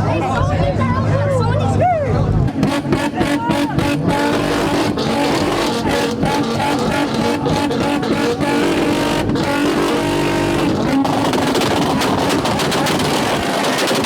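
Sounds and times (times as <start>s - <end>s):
car engine revving hard: 2.5s - 14.0s.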